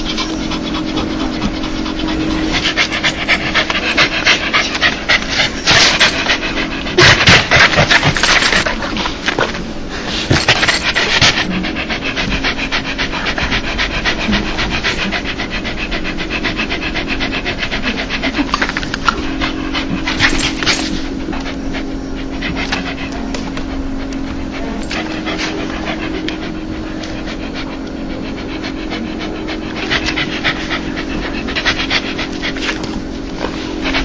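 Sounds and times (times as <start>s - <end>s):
dog panting fast: 0.0s - 34.0s.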